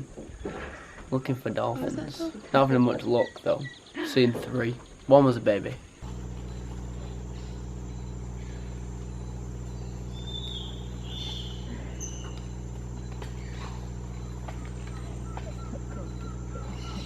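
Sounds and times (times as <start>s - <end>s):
low motor hum: 6.0s - 17.0s.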